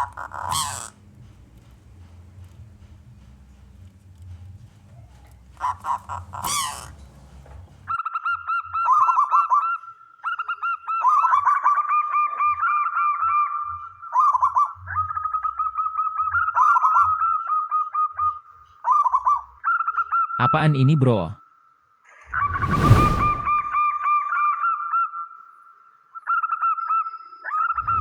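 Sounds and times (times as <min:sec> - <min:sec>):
low hum: 0:22.4 - 0:23.8.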